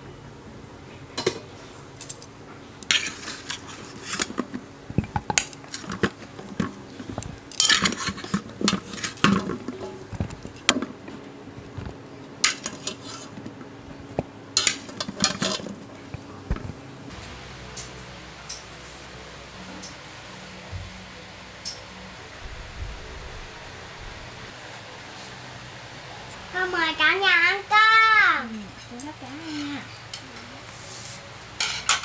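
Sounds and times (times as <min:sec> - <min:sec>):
dishes and cutlery clinking: 0:02.2 - 0:10.9, 0:12.4 - 0:13.4, 0:14.6 - 0:16.8, 0:31.6 - 0:32.0.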